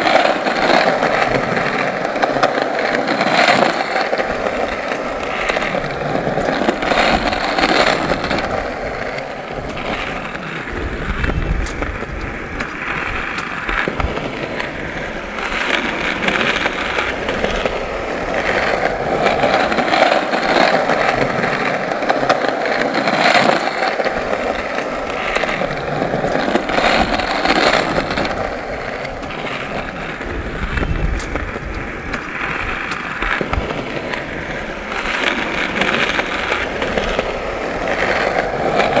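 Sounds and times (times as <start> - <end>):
skateboard wheels rolling on pavement: 0.0 - 39.0.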